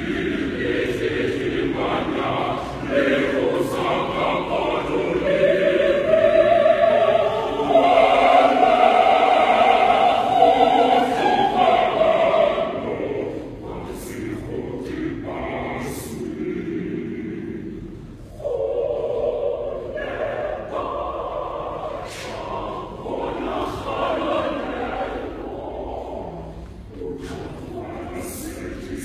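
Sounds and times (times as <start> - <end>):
choir singing: 0.0 - 29.0.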